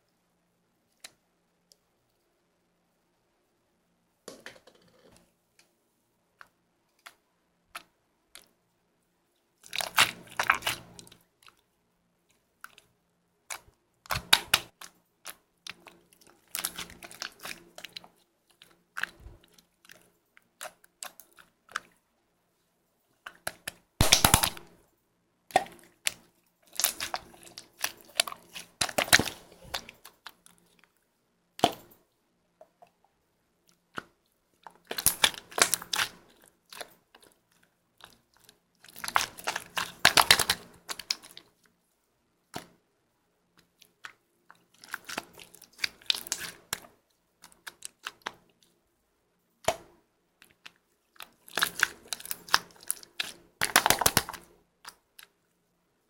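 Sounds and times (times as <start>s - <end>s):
slime squeezed clicking and crackling: 9.6s - 11.6s, 13.5s - 21.8s, 23.3s - 24.8s, 25.5s - 30.6s, 34.0s - 41.4s, 44.8s - 48.4s, 50.4s - 55.1s.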